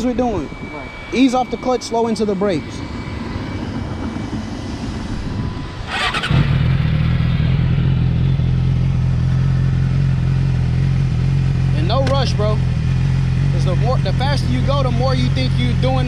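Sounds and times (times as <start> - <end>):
motorcycle engine starting and idling: 5.9 - 16.0.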